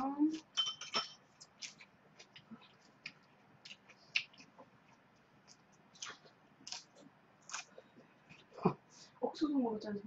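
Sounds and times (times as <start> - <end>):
crunching raw vegetables: 1.4 - 8.5.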